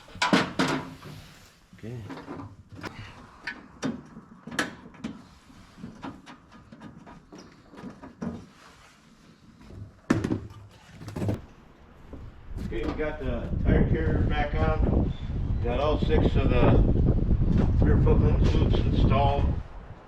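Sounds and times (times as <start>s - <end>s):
metal parts knocking and clunking: 0.0s - 1.1s.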